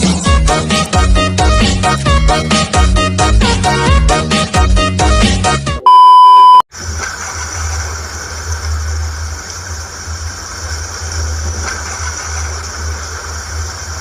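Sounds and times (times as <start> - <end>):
music: 0.0 - 5.8
loud steady beep: 5.8 - 6.6
truck engine rumble with hiss: 6.7 - 14.0.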